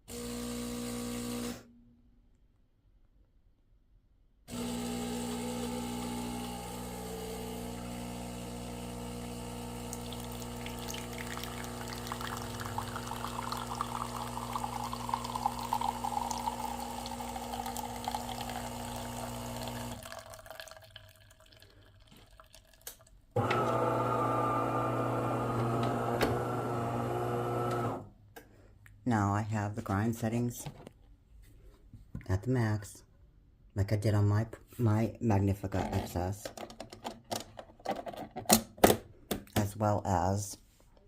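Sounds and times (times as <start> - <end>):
espresso machine pump humming: 4.5 - 20.2, 23.4 - 28.0
espresso trickling into cup: 9.3 - 22.8.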